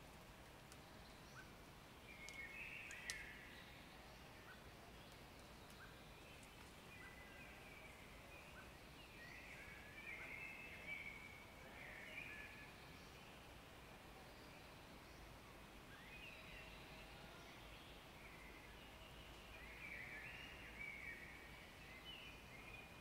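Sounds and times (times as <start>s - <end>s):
faint birdsong: 0.0s - 23.0s
soft bird chirps: 0.6s - 13.6s, 14.2s - 23.0s.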